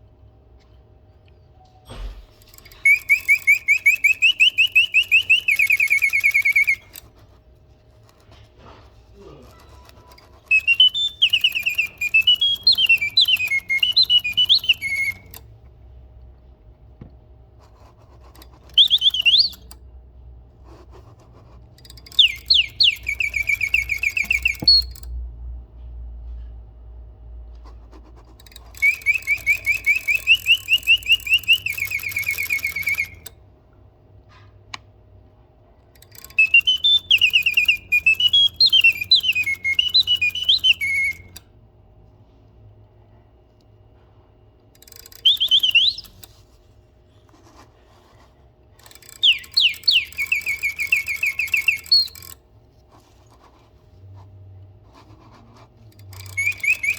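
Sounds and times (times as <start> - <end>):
mechanical singing bird whistling: 1.8 - 7.1, 9.5 - 15.4, 18.4 - 19.8, 21.8 - 25.2, 28.4 - 33.4, 35.9 - 41.4, 44.8 - 46.5, 48.8 - 52.4, 55.9 - 56.9.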